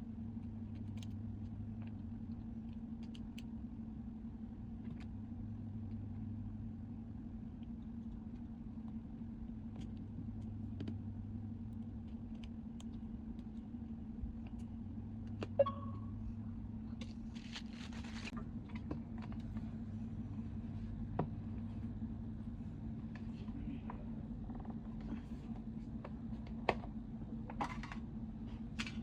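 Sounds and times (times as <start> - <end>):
low mechanical hum: 0.0 - 29.0
short pitched blip: 15.5 - 16.2.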